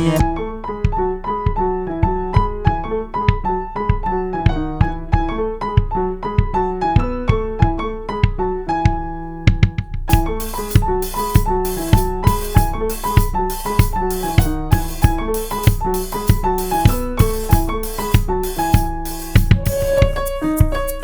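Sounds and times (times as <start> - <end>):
drum kit beat: 0.0 - 0.4, 9.7 - 21.0
keyboard bouncy melody: 0.0 - 0.4, 9.8 - 21.0.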